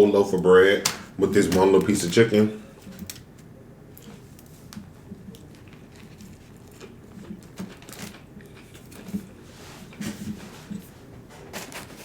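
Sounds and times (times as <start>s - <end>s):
chewing and mouth sounds: 5.0s - 9.3s.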